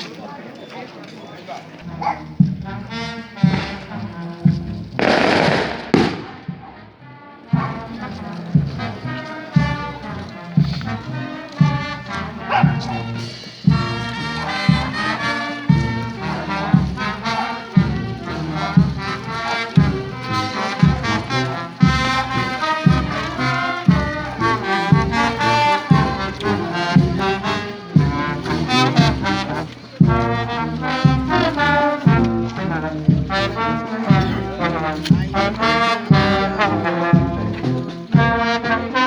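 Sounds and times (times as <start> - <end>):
brass band playing: 1.8 - 39.0
bass drum beating: 1.9 - 6.9, 7.6 - 38.4.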